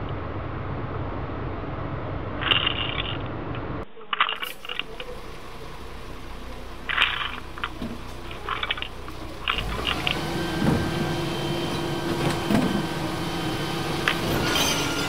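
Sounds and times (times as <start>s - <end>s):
steady low hum: 0.0s - 15.0s
plastic toy bricks clattering: 4.1s - 5.0s, 6.9s - 10.0s.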